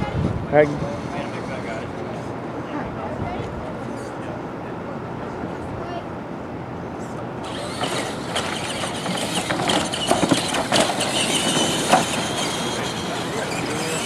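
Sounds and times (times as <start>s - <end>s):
thin motor whine: 7.0s - 14.0s
toy trucks rattling over track: 7.4s - 14.0s.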